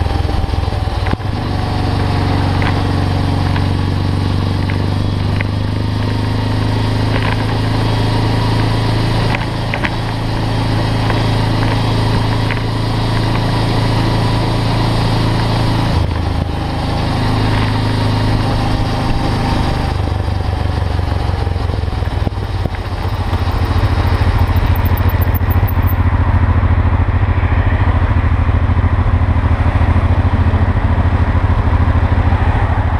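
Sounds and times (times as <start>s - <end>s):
motorcycle engine running: 0.0s - 32.9s.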